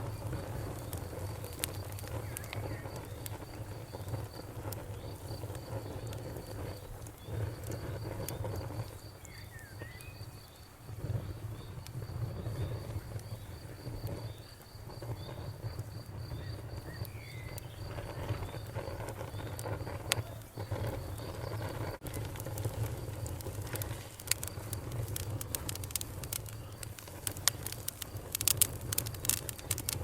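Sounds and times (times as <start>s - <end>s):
bonfire crackling and popping: 0.0s - 30.0s
cricket chirping: 0.0s - 30.0s.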